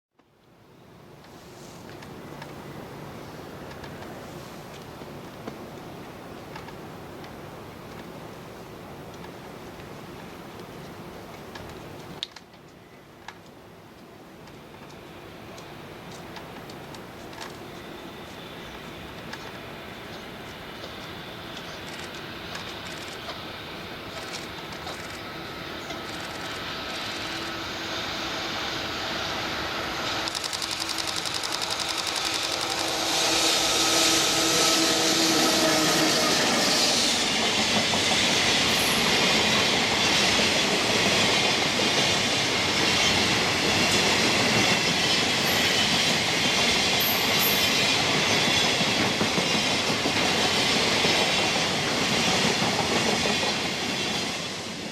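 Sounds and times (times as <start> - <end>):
electric locomotive hum: 0.6 - 54.9
wheels clickety-clack over rail joints: 3.6 - 8.2, 9.1 - 27.5, 30.2 - 33.0, 37.2 - 54.9.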